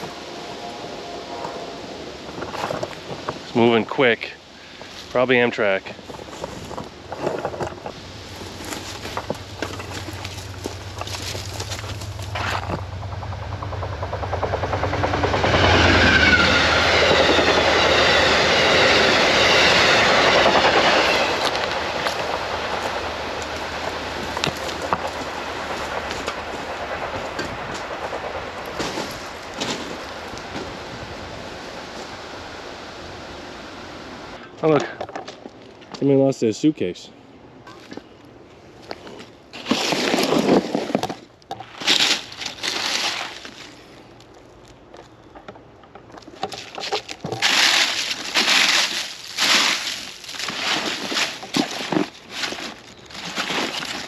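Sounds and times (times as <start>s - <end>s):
train rushing past on rails: 0.0s - 3.7s, 7.9s - 34.4s
suitcase contents rustling: 6.0s - 12.8s, 39.0s - 43.8s, 46.2s - 54.0s.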